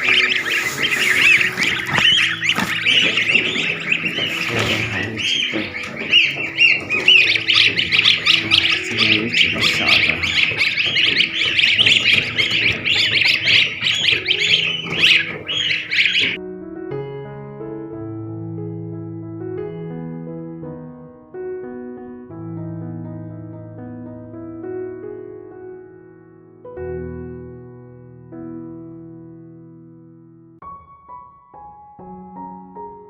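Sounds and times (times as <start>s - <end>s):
geese squawking: 0.0s - 16.4s
soft piano music: 0.0s - 33.0s.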